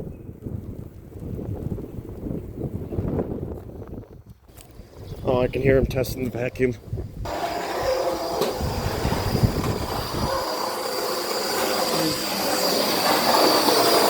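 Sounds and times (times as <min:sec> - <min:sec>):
vacuum cleaner running: 0:07.3 - 0:14.0.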